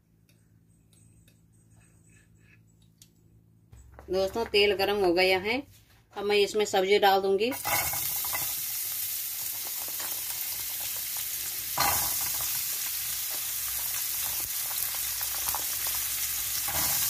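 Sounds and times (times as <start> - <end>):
oil sizzling in a frying pan: 7.5 - 17.0.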